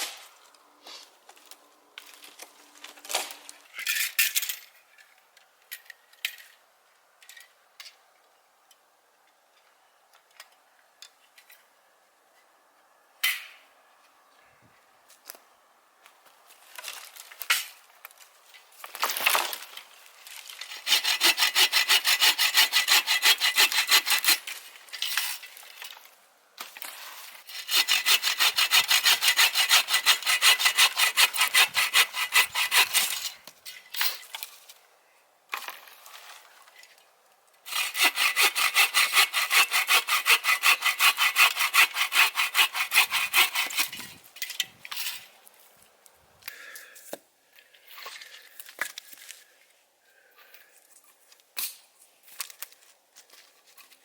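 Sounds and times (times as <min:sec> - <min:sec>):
hand saw rasping through wood: 0:20.7 - 0:24.6, 0:27.5 - 0:33.4, 0:37.7 - 0:44.2.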